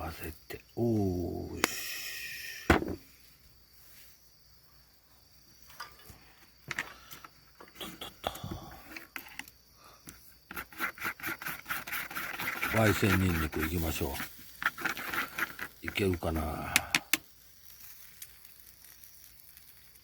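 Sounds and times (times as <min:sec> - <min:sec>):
utensils clicking in a small dish: 0:10.5 - 0:17.3.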